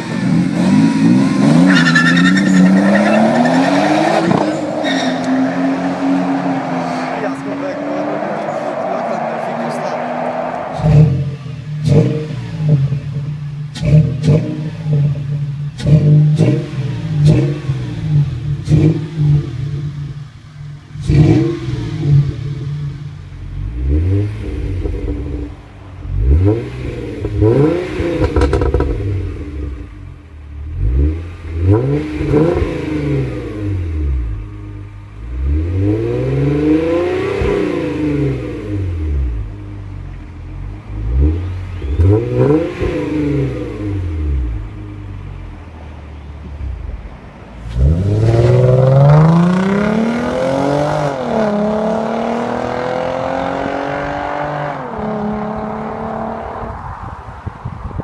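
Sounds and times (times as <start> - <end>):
car engine revving: 0.0 - 57.2.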